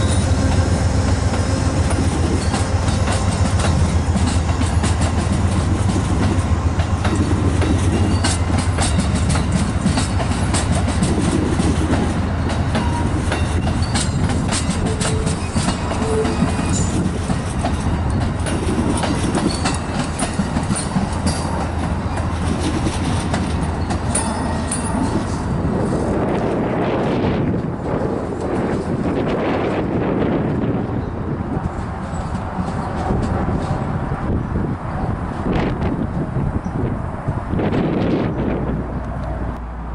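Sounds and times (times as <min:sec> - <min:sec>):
train wheels clicking over joints: 0:00.0 - 0:29.2
low train drone: 0:00.0 - 0:39.9
wheel squeaks: 0:12.8 - 0:25.4.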